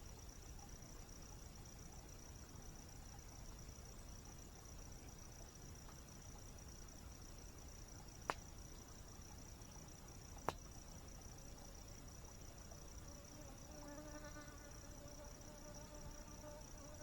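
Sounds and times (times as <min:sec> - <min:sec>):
high insect trill: 0:00.0 - 0:17.0
campfire pops: 0:10.4 - 0:10.7
flying insect buzzing: 0:13.0 - 0:17.0.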